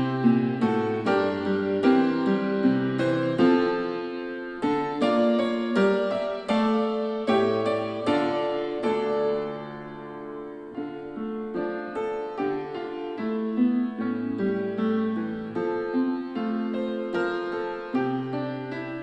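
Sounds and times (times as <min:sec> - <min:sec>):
piano music through speakers: 0:00.0 - 0:19.0.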